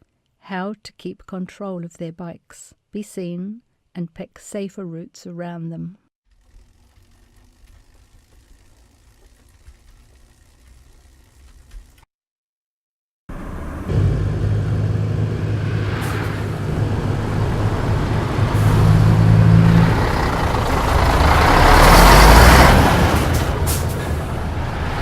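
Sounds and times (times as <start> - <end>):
heavy truck engine running: 13.3 - 25.0
road noise: 13.3 - 25.0.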